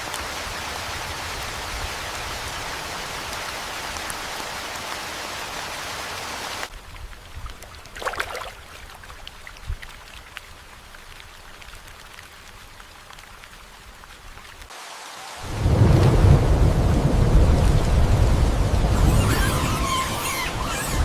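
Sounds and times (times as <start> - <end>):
rain hiss: 0.0 - 7.9, 9.6 - 21.0
raindrops dripping: 6.6 - 14.7.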